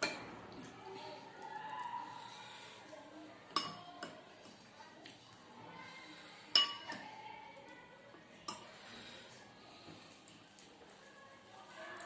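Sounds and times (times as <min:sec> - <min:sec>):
tableware clinking: 0:06.5 - 0:07.0.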